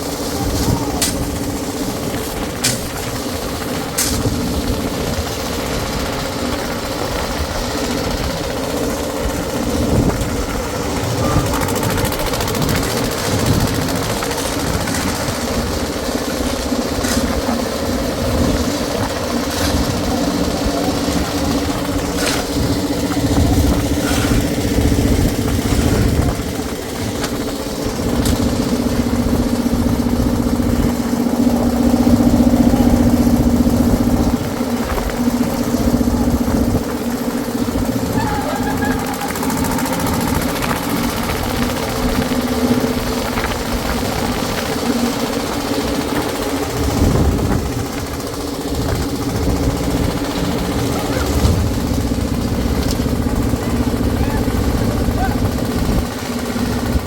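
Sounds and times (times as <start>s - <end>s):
concrete mixer engine running: 0.0s - 57.0s.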